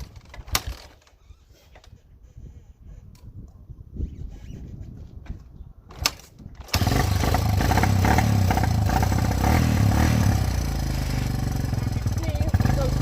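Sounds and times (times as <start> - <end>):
dirt bike engine running: 6.6 - 13.0.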